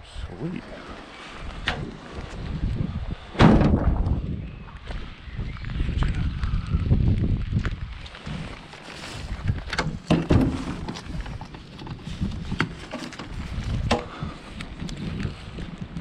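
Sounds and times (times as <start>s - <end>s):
wind buffeting microphone: 0.0s - 16.0s
sharp knocks and clunks: 3.4s - 4.2s, 9.7s - 11.0s, 12.6s - 14.2s.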